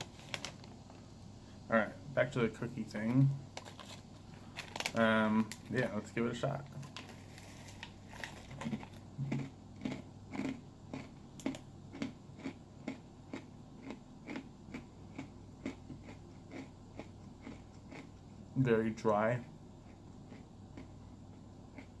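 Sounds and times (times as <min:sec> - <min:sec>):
person chewing crunchy cookie: 0:06.8 - 0:18.6, 0:19.4 - 0:22.0.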